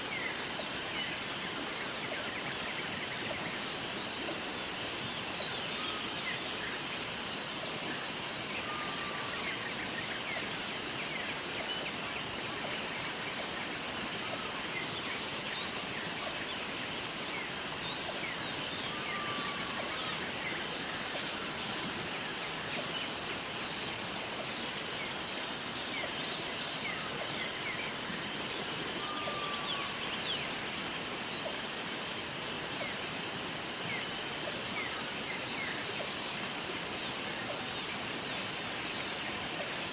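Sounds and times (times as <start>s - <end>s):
waterfall rushing: 26.8s - 35.6s.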